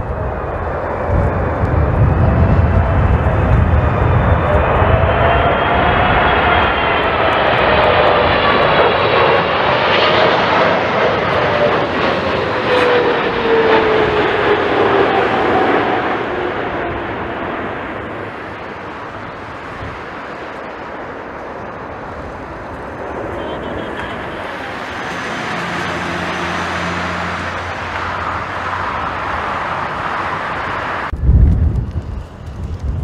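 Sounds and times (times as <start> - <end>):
jet engines passing by: 0.0 - 33.0.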